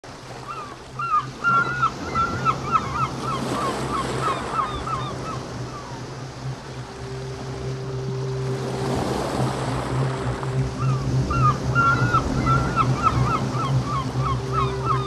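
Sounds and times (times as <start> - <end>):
surf washing: 0.0 - 15.0
bird honking calls: 0.3 - 15.0
faint steady tone: 5.7 - 15.0
low hum: 5.8 - 15.0.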